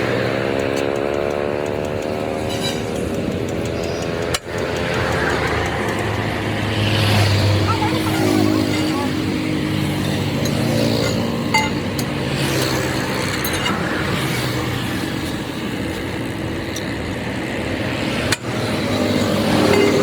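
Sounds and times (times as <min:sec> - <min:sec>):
traffic noise: 0:00.0 - 0:20.0
light metallic clinks: 0:00.3 - 0:14.5.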